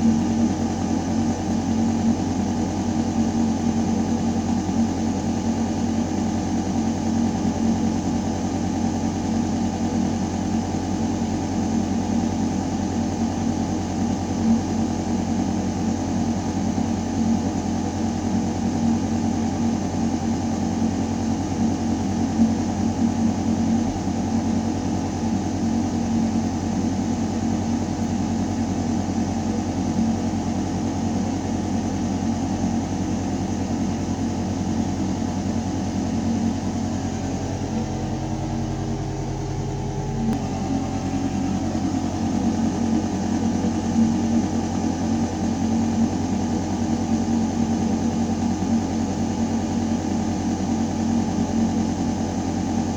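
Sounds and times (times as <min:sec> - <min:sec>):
ventilation system humming: 0:00.0 - 0:52.9.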